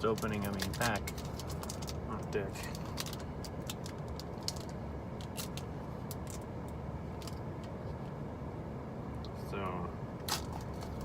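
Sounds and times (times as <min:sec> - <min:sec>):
foil pack crinkling: 0:00.0 - 0:02.0.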